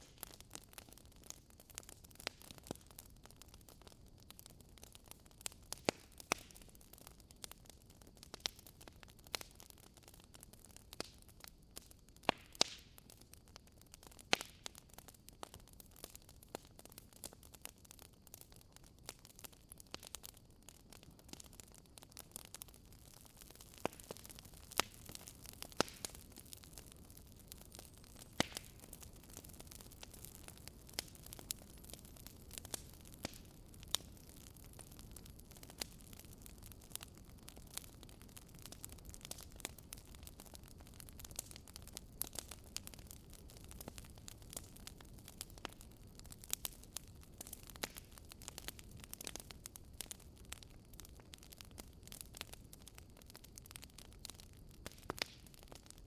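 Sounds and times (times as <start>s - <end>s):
fire crackling and popping: 0.0s - 56.0s
flames hissing: 22.4s - 37.1s.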